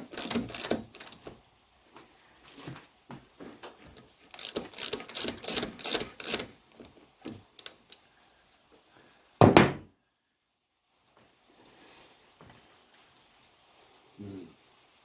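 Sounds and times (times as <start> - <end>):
metal hand tools clattering: 0.0 - 1.3, 4.3 - 6.5.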